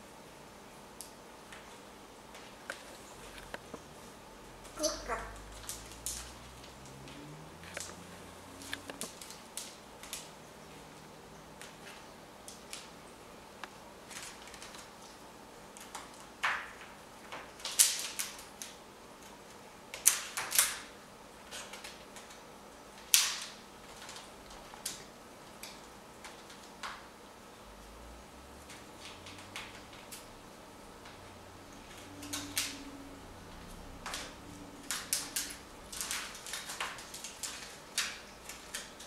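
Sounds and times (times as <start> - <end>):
parrot rummaging toys clicking: 4.6 - 8.0, 14.0 - 19.4, 20.0 - 22.4, 23.0 - 27.1, 28.6 - 30.3, 31.8 - 32.9, 33.5 - 39.0.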